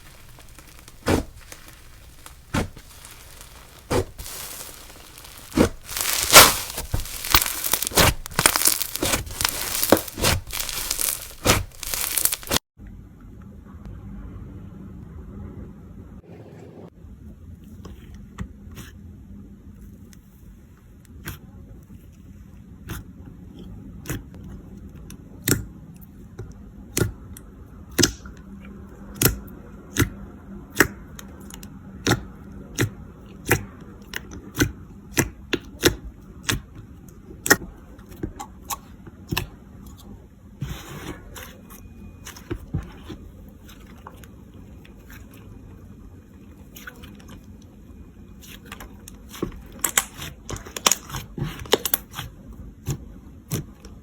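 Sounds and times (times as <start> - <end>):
crackling slime pops: 0.0 - 12.6, 49.3 - 52.2
slime squishing and rubbing: 0.0 - 12.6, 40.6 - 45.6
sticky slime pops: 0.0 - 12.6.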